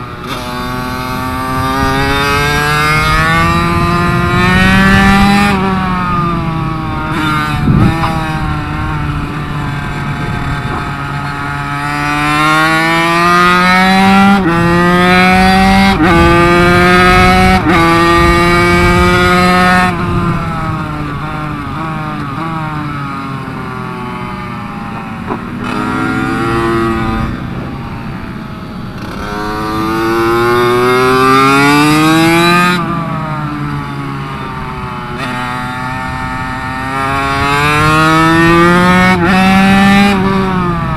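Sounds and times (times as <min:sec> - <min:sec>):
minibike engine revving: 0:00.0 - 0:40.9.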